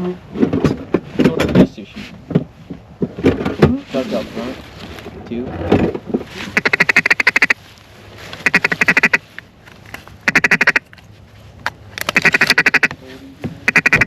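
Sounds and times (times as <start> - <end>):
duck call quacks: 6.5 - 7.6, 8.4 - 9.2, 10.2 - 10.8, 12.1 - 12.9, 13.6 - 14.0.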